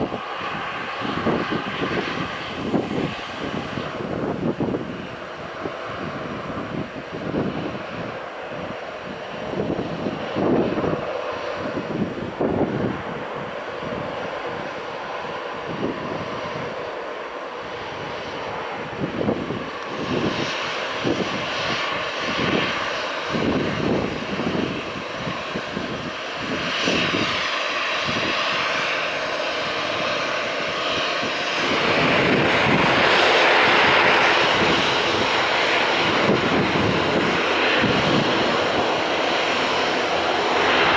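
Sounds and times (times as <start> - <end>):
jet engines at take-off: 0.0 - 40.9
low rumbles: 17.6 - 40.9.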